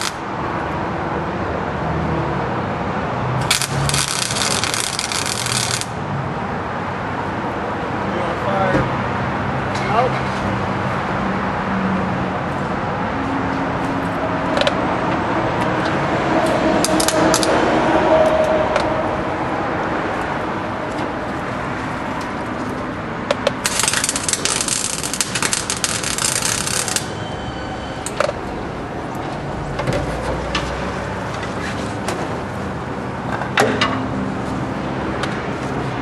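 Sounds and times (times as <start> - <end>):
welder sizzling crackle: 0.0 - 0.2, 3.4 - 6.0, 16.8 - 17.5, 23.6 - 27.1
steady background noise: 0.0 - 36.0.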